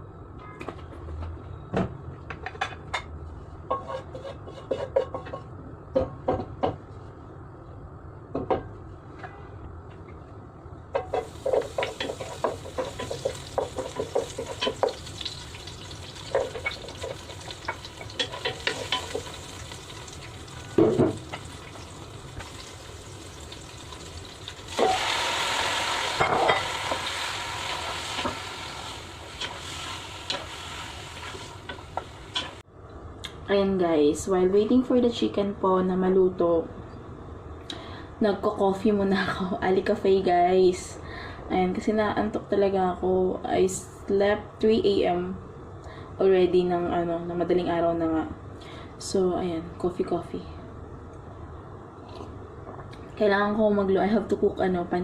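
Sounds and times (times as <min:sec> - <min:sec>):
metal spatula scraping a pan: 0:03.7 - 0:05.3
food frying sizzle: 0:11.1 - 0:32.6.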